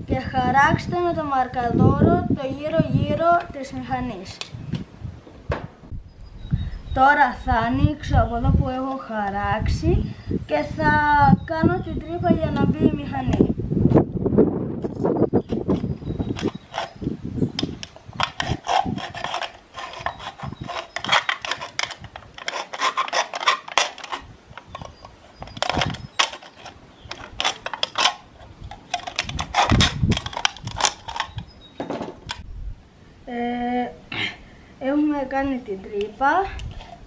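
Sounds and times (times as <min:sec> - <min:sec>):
blade scraping and rasping: 0:15.0 - 0:31.5.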